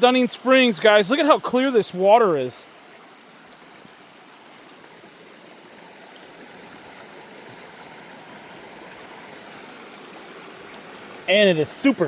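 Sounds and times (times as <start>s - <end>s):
water running over rocks: 0.0s - 12.0s.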